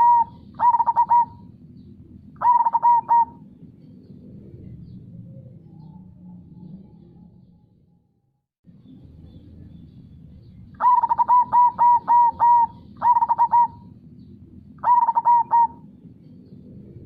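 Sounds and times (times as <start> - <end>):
dove cooing: 0.0 - 3.6, 10.8 - 14.0, 14.8 - 16.0.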